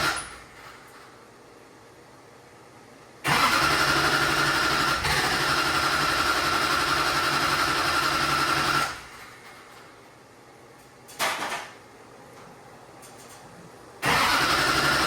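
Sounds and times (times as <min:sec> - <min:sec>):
diesel engine cranking by starter: 0:00.0 - 0:00.6, 0:03.2 - 0:09.4, 0:14.0 - 0:15.0.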